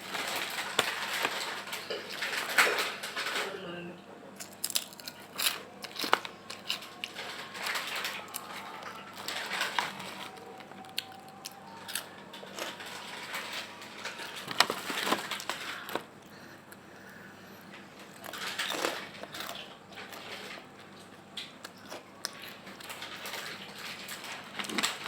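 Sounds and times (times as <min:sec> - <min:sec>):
chewing crispy snack: 0:04.4 - 0:16.4, 0:18.0 - 0:25.0.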